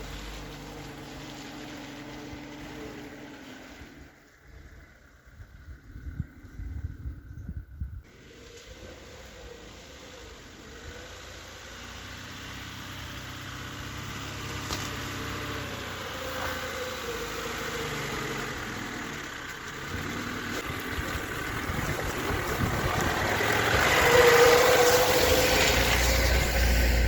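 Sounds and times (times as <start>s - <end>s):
car engine running: 13.0s - 27.0s.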